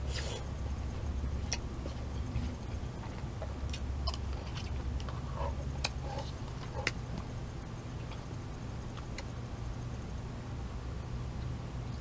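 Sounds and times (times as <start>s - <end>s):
person chewing: 0.0s - 7.2s
steady low hum: 0.0s - 12.0s.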